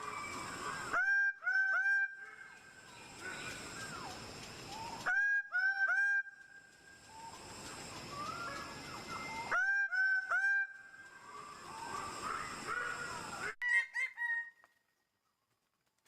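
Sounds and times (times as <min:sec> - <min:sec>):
high insect hum: 0:00.0 - 0:13.6
forest birds whistling: 0:02.0 - 0:14.6.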